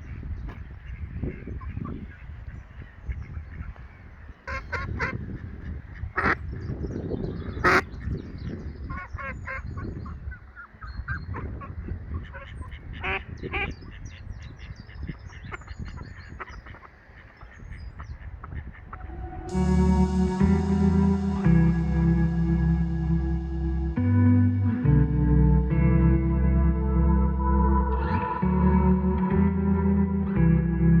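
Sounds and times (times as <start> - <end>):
small birds chirping: 0.0 - 19.5
geese honking: 4.5 - 5.2, 6.0 - 6.4, 7.6 - 7.9, 15.3 - 24.0
steady low rumble: 18.8 - 31.0.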